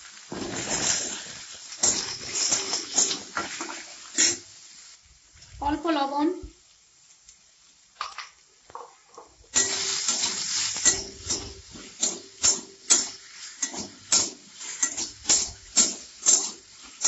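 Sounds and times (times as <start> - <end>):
eggplant sizzling in oil: 0.0 - 17.0
spatula scraping a pan: 0.3 - 4.5, 9.6 - 17.0.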